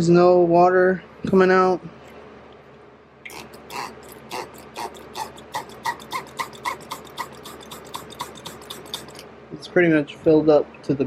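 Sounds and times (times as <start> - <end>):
spray bottle squirting water: 3.3 - 9.2.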